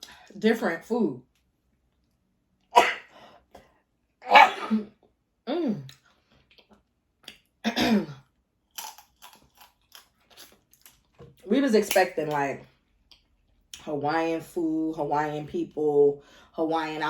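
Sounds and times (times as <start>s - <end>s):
woman coughing: 4.3s - 4.9s, 7.6s - 8.2s.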